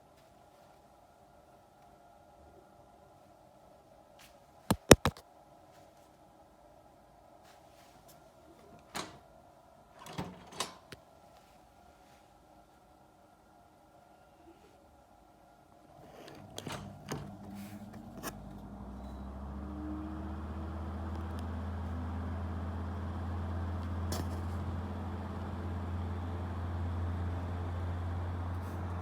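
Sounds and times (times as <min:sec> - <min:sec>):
ventilation fan motor humming: 0:15.8 - 0:29.0.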